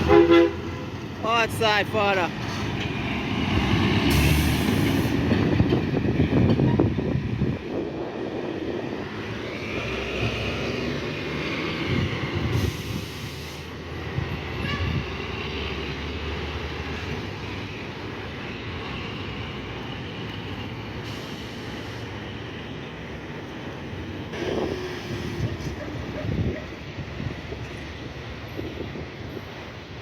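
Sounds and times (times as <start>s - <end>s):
truck diesel engine rumbling: 0.0s - 29.7s.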